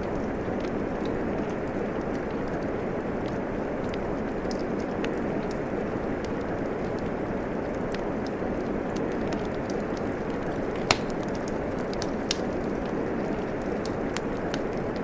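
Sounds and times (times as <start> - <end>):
steady rain: 0.0 - 15.0
wood fire crackling: 0.0 - 15.0
fire pops: 9.0 - 15.0.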